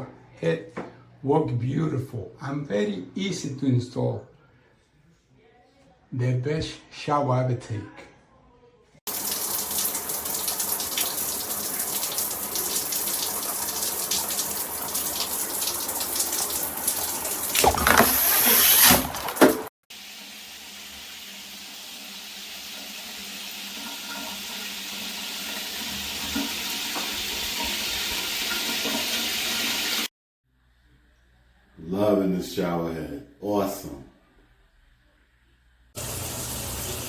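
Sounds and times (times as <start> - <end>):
shower water spraying: 9.1 - 30.1, 36.0 - 37.0.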